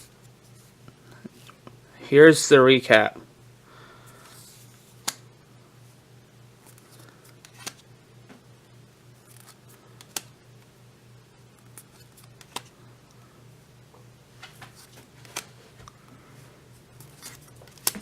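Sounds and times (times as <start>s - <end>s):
low steady hum: 0.0s - 18.0s
trading cards clicking: 9.3s - 10.3s, 17.1s - 18.0s.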